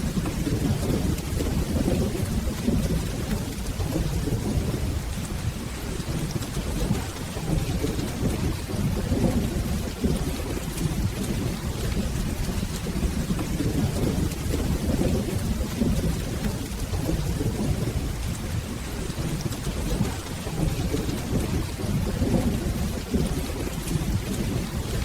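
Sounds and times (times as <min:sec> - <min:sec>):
low rolling thunder: 0:00.0 - 0:25.0
steady rain: 0:00.0 - 0:25.0.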